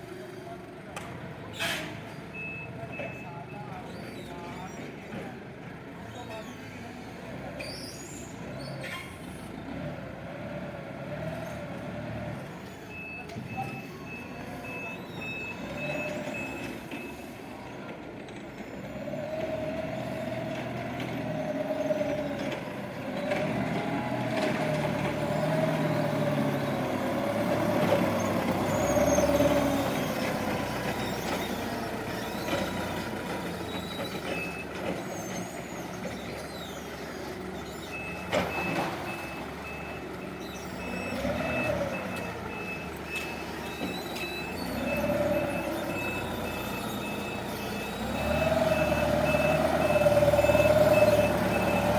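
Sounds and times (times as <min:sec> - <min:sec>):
forklift reversing alarm beeps: 0:02.3 - 0:04.1, 0:12.6 - 0:17.9, 0:21.3 - 0:51.9
forklift motor whine: 0:19.2 - 0:51.9.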